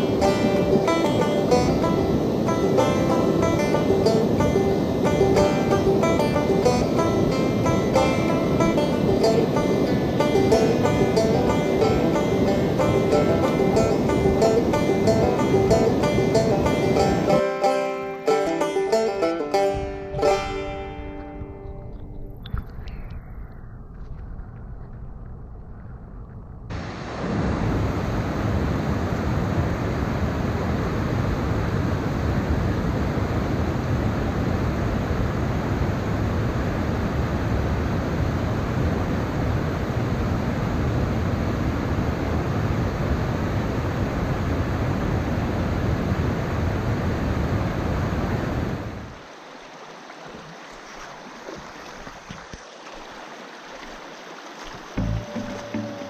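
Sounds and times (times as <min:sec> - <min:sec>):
stream water rushing: 0:00.0 - 0:22.9, 0:48.0 - 0:56.0.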